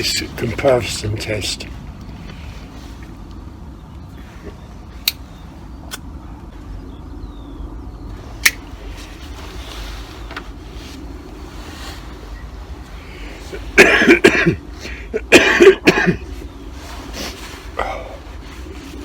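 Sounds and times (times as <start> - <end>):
low outdoor rumble: 0.0 - 19.0
air rifle mechanical clicks: 8.4 - 8.6.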